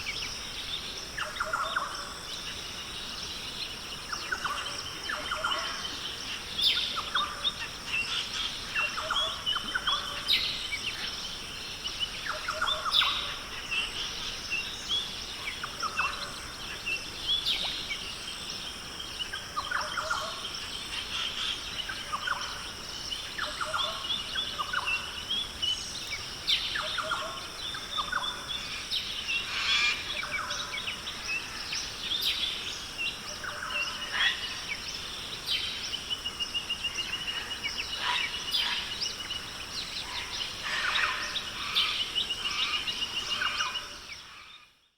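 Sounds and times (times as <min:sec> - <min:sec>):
birds chirping and calling: 0:19.2 - 0:44.6.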